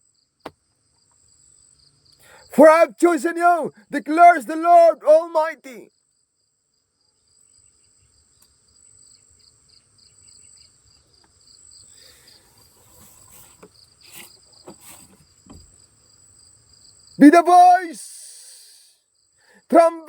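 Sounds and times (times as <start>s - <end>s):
crickets chirping: 0.0s - 5.3s, 5.9s - 19.7s
faint rustles and clicks: 12.3s - 15.8s.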